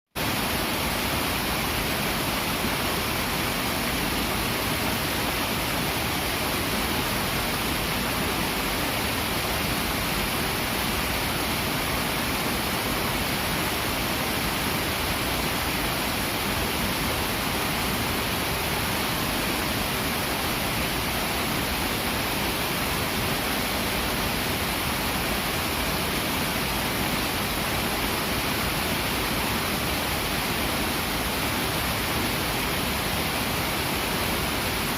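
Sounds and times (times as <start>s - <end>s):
river flowing: 0.2s - 34.9s.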